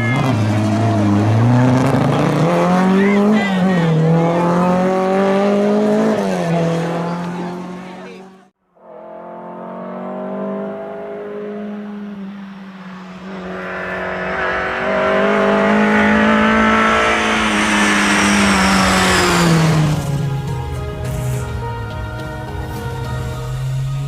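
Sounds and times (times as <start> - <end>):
rally car engine at high revs: 0.0 - 20.6.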